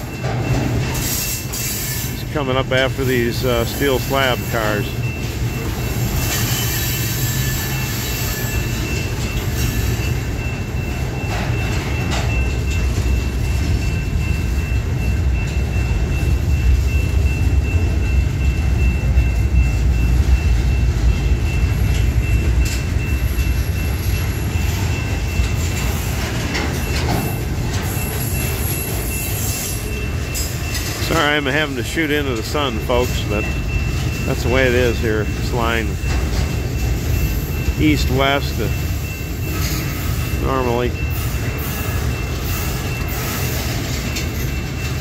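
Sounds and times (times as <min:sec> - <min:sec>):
high wheel squeal: 0:00.0 - 0:15.5, 0:21.4 - 0:45.0
freight train rumbling past: 0:00.0 - 0:45.0.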